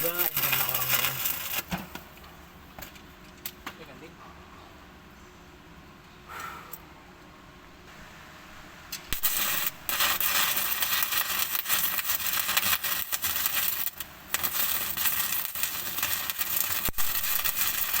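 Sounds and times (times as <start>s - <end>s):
arc welding crackling sizzle: 0.0s - 4.1s, 7.8s - 18.0s.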